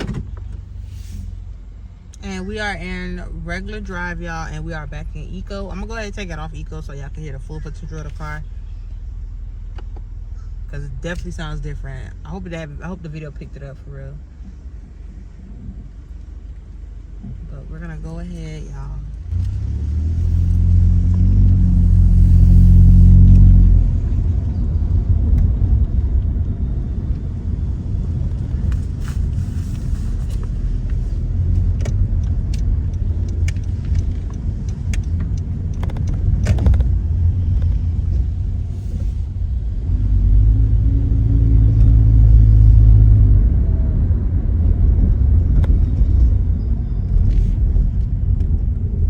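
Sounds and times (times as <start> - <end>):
car exhaust drone: 0.0 - 49.0
road noise: 0.0 - 49.0.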